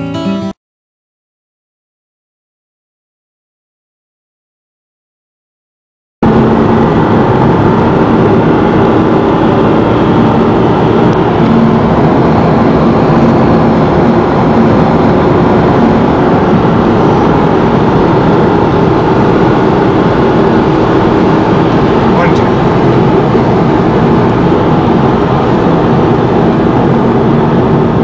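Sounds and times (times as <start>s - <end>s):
car engine running: 6.2s - 28.0s
road and wind noise: 6.2s - 28.0s.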